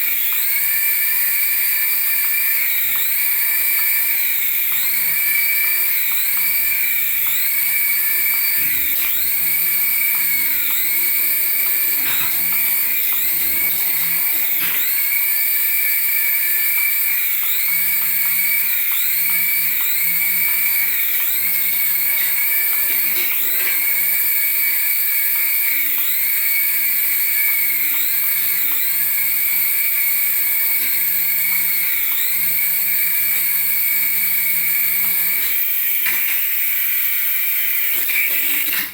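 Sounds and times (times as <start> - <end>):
remote-control toy electric whine: 0.0 - 38.9.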